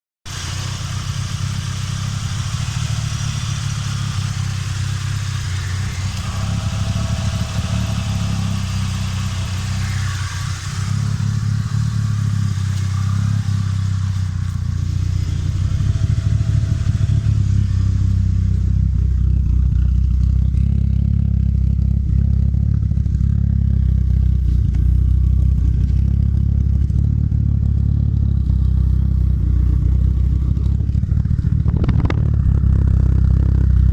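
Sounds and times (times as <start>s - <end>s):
car engine idling with exhaust rumble: 0.3s - 33.9s
clattery engine noise: 0.3s - 33.9s.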